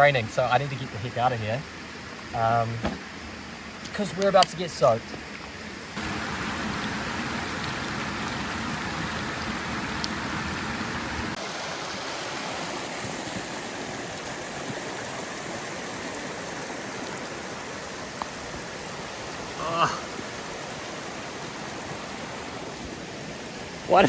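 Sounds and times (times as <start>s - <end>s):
rain falling: 0.0s - 24.0s
river rushing: 5.7s - 24.0s.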